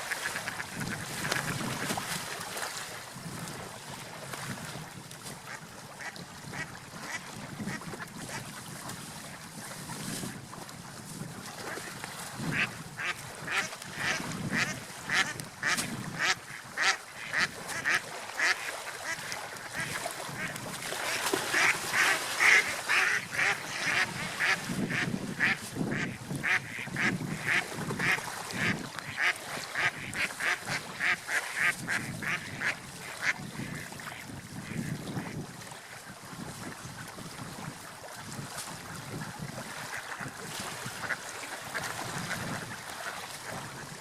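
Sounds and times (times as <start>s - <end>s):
wind and water rumble: 0.0s - 44.0s
ducks quacking: 12.5s - 35.4s, 41.0s - 43.2s.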